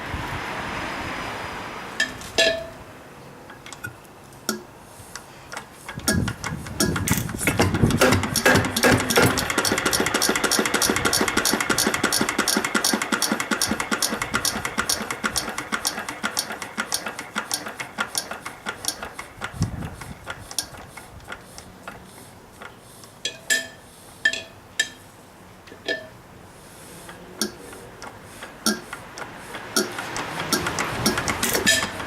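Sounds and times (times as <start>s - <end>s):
diesel engine winding down: 7.0s - 19.4s, 29.0s - 32.0s.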